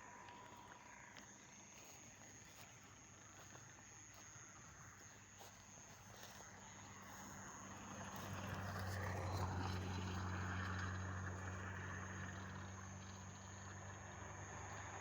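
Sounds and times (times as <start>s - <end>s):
distant engine hum: 0.0s - 15.0s.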